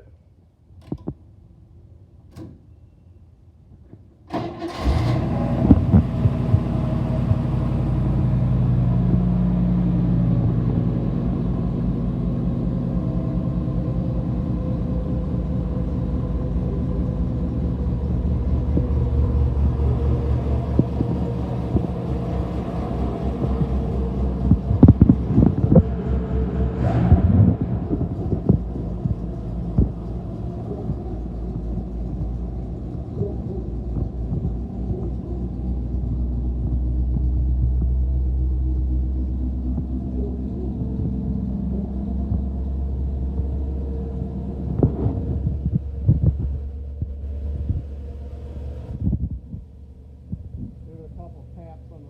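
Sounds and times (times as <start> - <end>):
car engine starting and idling: 4.2 - 52.0.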